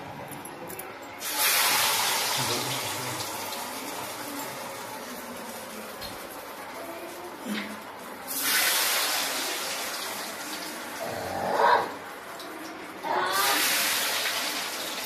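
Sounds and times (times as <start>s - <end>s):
dough sizzling in hot oil: 1.2s - 6.8s, 8.0s - 11.3s, 13.3s - 15.0s.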